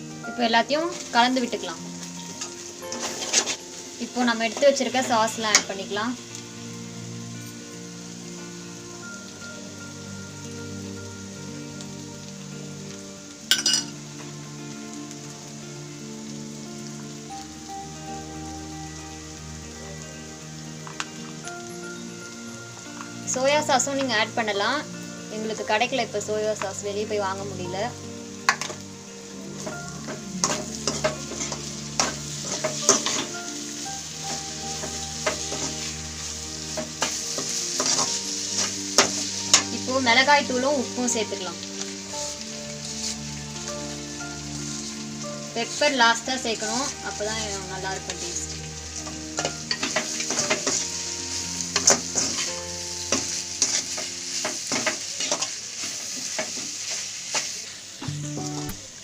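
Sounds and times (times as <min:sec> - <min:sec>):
food sizzling in a pan: 0:00.0 - 0:59.0
spatula scraping a pan: 0:02.9 - 0:03.6, 0:29.6 - 0:33.3, 0:36.7 - 0:39.6, 0:49.0 - 0:50.9, 0:51.7 - 0:57.5
spatula scraping and knocking pan: 0:29.6 - 0:33.3, 0:34.3 - 0:35.9, 0:36.7 - 0:39.7, 0:49.4 - 0:50.9.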